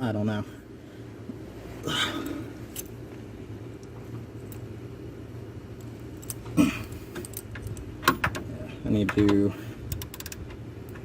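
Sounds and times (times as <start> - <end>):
faint hum: 0.0 - 11.0
ratchet clicks: 9.2 - 11.0.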